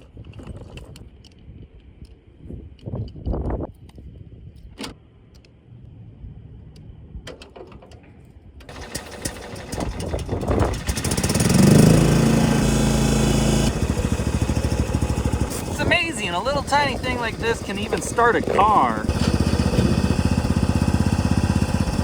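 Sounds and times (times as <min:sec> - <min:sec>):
tractor engine cranking and running: 0:08.7 - 0:22.0.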